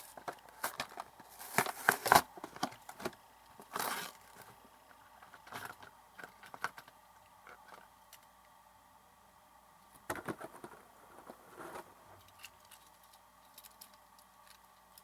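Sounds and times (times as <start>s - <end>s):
packaging crinkling and rustling: 0.0s - 4.6s
packaging tearing: 0.6s - 2.3s.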